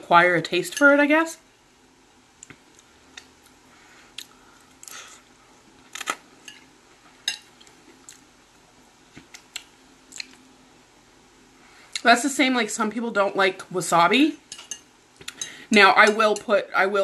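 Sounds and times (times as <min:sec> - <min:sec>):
person chewing noodles: 0:02.6 - 0:05.2, 0:09.2 - 0:10.4.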